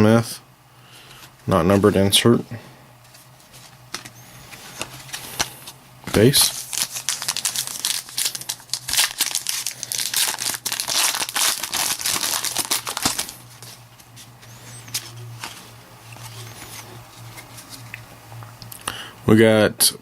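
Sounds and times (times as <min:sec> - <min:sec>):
cards rustling: 0:03.0 - 0:18.1
foil pack tearing and crinkling: 0:04.6 - 0:13.8.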